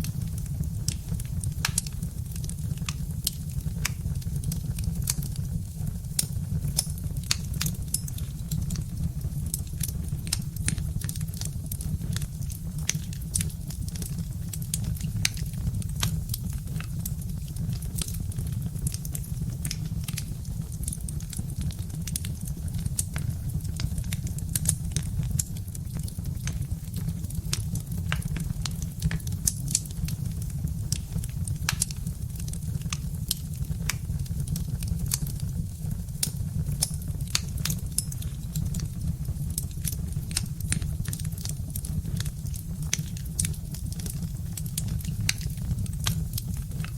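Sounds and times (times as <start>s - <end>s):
log fire crackling and popping: 0.0s - 46.9s.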